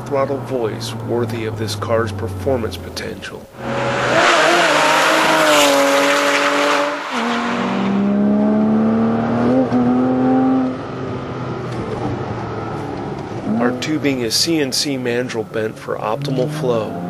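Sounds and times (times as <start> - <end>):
sports car engine at high revs: 3.6 - 14.2, 16.0 - 17.0.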